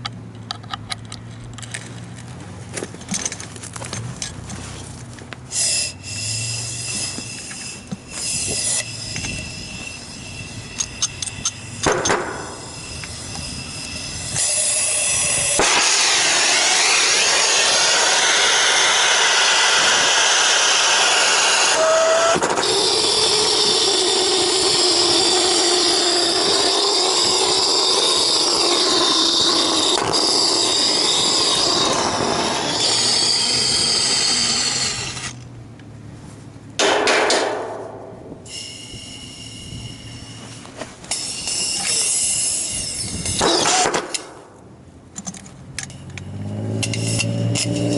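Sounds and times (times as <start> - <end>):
torch flame hissing: 12.4 - 35.3.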